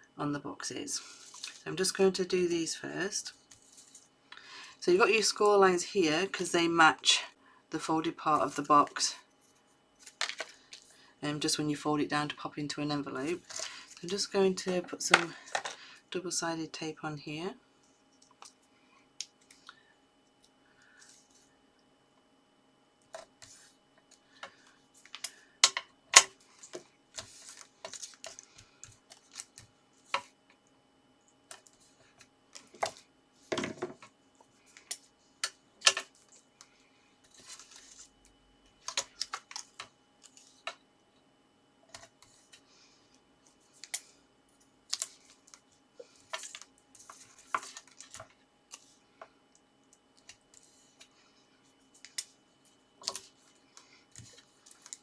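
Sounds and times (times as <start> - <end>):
paper rustling: 3.4 - 4.1, 26.5 - 30.3, 37.2 - 38.1.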